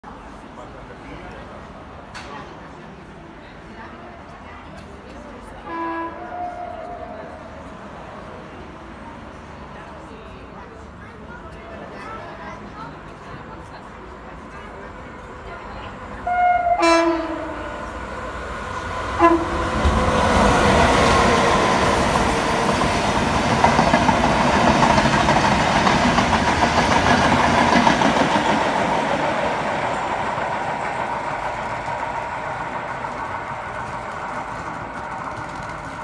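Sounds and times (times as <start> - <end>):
locomotive horn blasts: 5.7 - 7.2, 16.2 - 17.8, 19.2 - 19.6
train wheels rolling on rails: 10.8 - 36.0.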